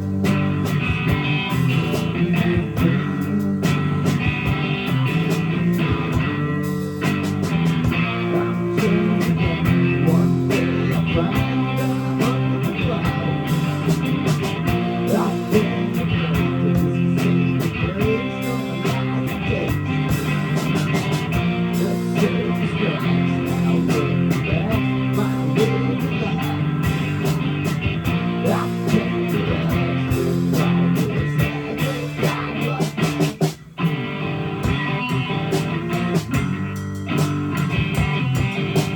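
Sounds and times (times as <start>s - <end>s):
live rock band instrumental: 0.0s - 38.9s.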